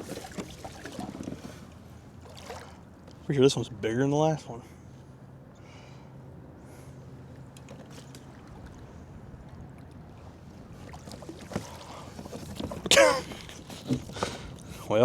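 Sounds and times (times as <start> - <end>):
clicks and knocks on kayak hull: 11.0 - 14.7.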